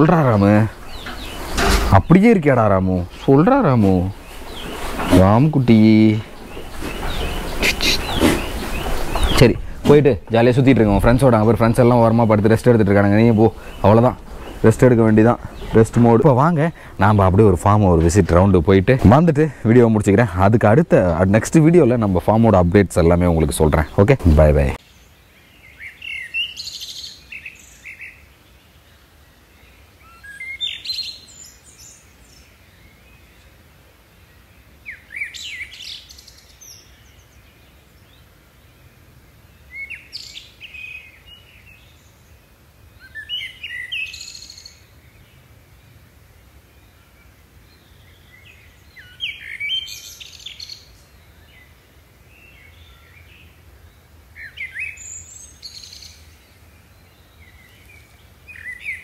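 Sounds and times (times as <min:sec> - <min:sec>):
songbird chirping and whistling: 0:00.0 - 0:17.0, 0:43.0 - 0:44.8, 0:48.6 - 0:51.2, 0:54.4 - 0:59.0.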